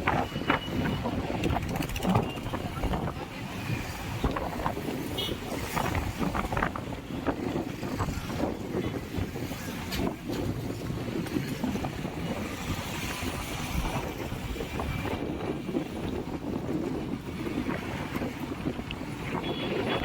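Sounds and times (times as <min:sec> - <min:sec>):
moving vehicle noise: 0:00.0 - 0:20.0
wind buffeting microphone: 0:00.0 - 0:20.0.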